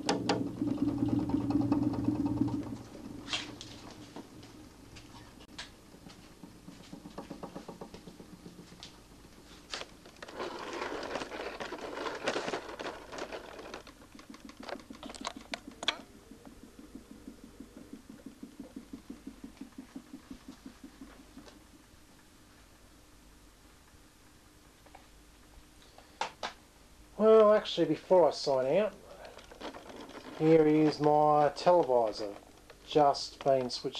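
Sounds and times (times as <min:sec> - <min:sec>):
fan motor pulsing hum: 0:00.0 - 0:24.6
handling rustle: 0:09.4 - 0:16.0, 0:29.0 - 0:33.8
scattered clicks: 0:12.4 - 0:21.8.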